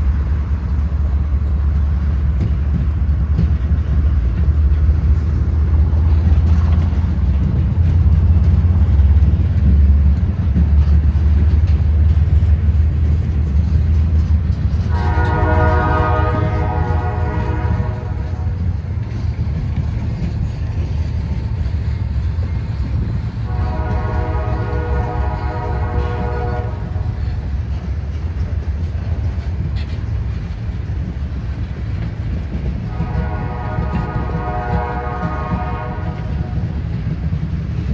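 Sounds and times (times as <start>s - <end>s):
diesel locomotive rumbling: 0.0s - 37.9s
train air horn chord: 14.8s - 18.7s, 23.4s - 27.2s, 32.9s - 36.8s.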